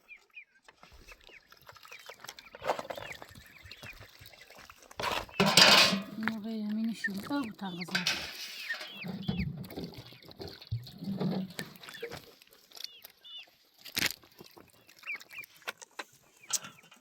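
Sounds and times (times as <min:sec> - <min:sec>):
chickens clucking: 0:01.0 - 0:13.7
chicks peeping: 0:06.4 - 0:10.6, 0:12.9 - 0:13.6, 0:14.3 - 0:15.5.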